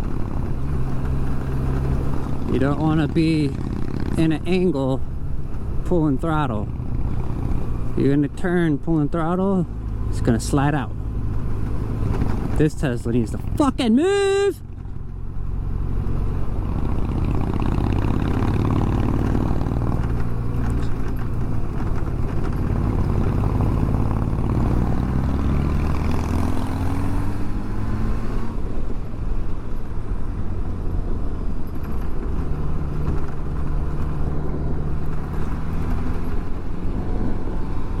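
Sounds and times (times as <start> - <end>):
motorcycle engine running: 0.0 - 8.2, 8.9 - 27.5
road and wind noise: 0.0 - 38.0.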